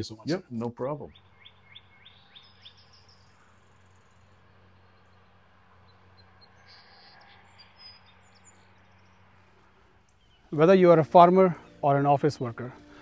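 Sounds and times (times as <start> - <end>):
faint birdsong: 0.0 - 13.0
low steady hum: 0.0 - 13.0.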